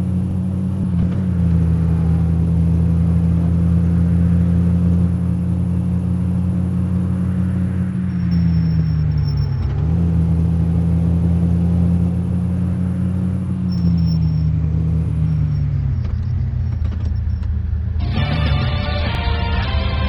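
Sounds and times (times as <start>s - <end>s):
car engine drone: 0.0s - 20.0s
music: 18.0s - 20.0s.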